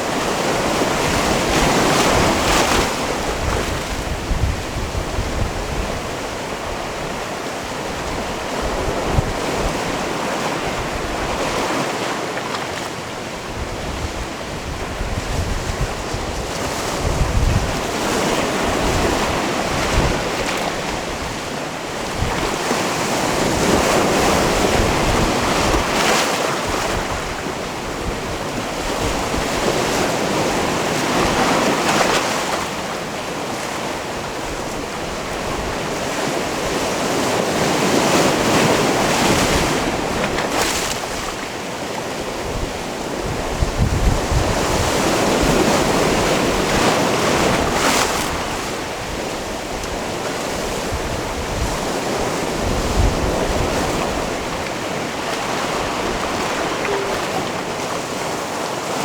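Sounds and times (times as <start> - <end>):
wind buffeting microphone: 0.0 - 11.8, 13.2 - 32.1, 42.2 - 59.0
wave splashes: 0.0 - 59.0.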